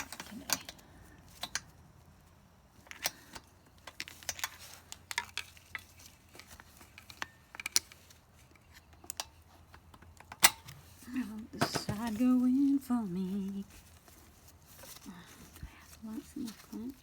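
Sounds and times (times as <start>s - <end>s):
small clicks and taps of metal parts: 0.0s - 1.8s, 2.8s - 10.8s.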